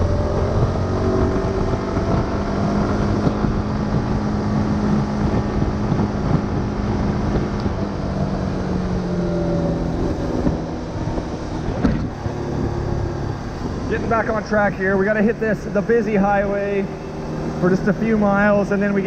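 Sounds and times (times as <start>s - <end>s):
motorbike engine running: 0.0s - 19.0s
wind rushing over microphone: 0.0s - 19.0s.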